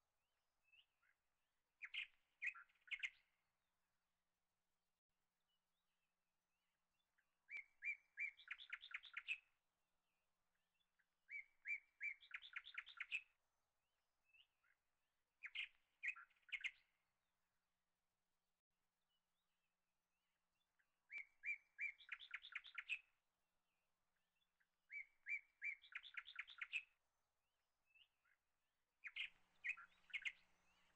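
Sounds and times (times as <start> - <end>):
small bird singing: 0.6 - 1.2, 1.8 - 3.4, 7.0 - 9.6, 10.5 - 13.4, 14.2 - 14.8, 15.4 - 17.0, 20.6 - 23.2, 24.1 - 27.0, 27.8 - 30.9.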